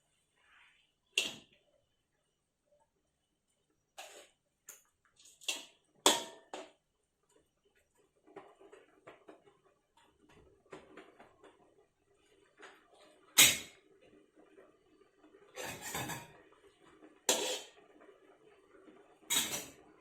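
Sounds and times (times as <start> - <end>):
utensils and dishes clicking: 15.6 - 16.4, 19.3 - 19.8.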